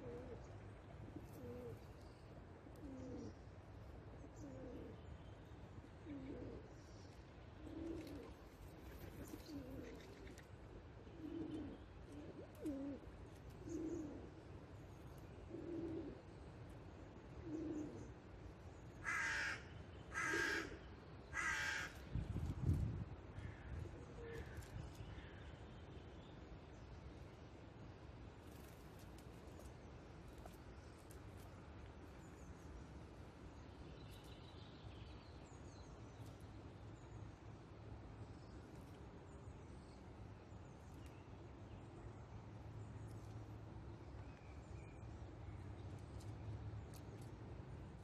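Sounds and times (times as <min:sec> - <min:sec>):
pigeon cooing: 0:00.0 - 0:00.4, 0:01.2 - 0:01.8, 0:02.7 - 0:03.4, 0:04.4 - 0:05.0, 0:06.0 - 0:06.7, 0:07.6 - 0:08.4, 0:09.1 - 0:10.4, 0:11.0 - 0:14.4, 0:15.5 - 0:16.2, 0:17.4 - 0:18.1
crow cawing: 0:19.0 - 0:22.0.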